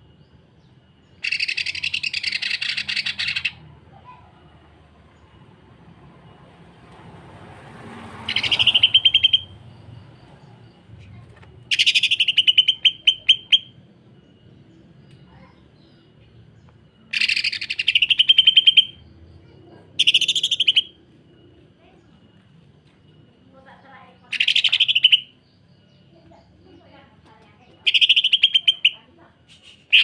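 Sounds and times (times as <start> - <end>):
bird singing harsh repeated notes: 0.8 - 4.2, 8.1 - 21.5, 24.0 - 30.0.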